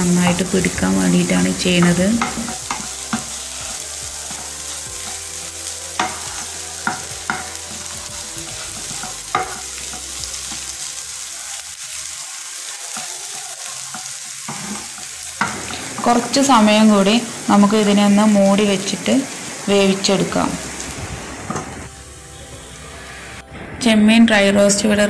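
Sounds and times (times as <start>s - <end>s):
prawns sizzling in a pan: 0.0s - 23.4s
spatula tapping on a pan: 1.8s - 3.4s, 6.0s - 8.0s, 8.8s - 10.7s, 13.9s - 15.8s
spatula scraping a pan: 1.8s - 16.1s.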